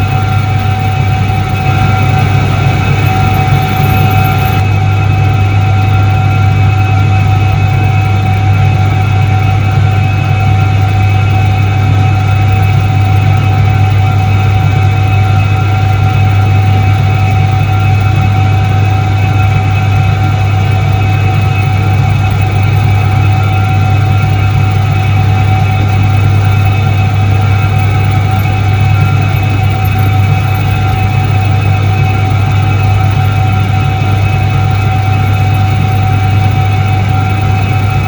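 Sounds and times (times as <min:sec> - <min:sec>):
washing machine motor humming: 0:00.0 - 0:04.9, 0:21.8 - 0:38.0.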